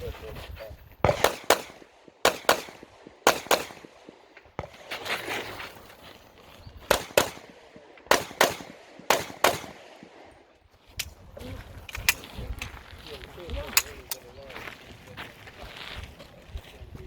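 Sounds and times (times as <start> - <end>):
pistol shots in quick pairs: 1.0 - 5.3, 6.9 - 10.3.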